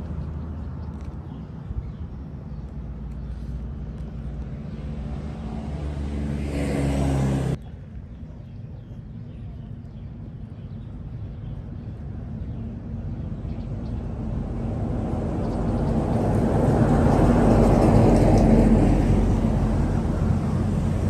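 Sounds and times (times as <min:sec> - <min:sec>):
vehicle engine running: 0:12.8 - 0:21.0.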